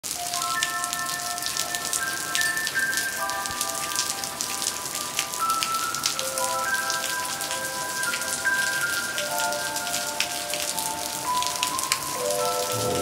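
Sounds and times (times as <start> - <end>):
heavy rain pattering: 0.0 - 13.0
melody of held notes: 8.0 - 13.0.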